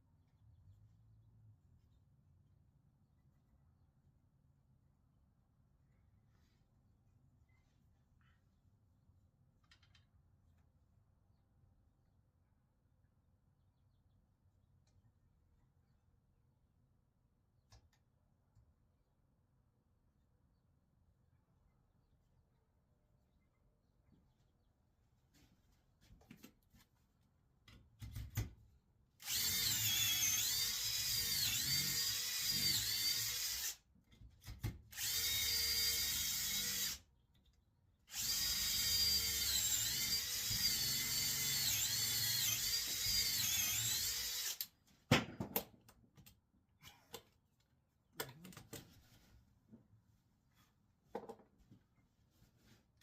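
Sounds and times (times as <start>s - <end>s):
power drill whining: 29.2s - 33.8s, 34.9s - 37.0s, 38.1s - 44.6s.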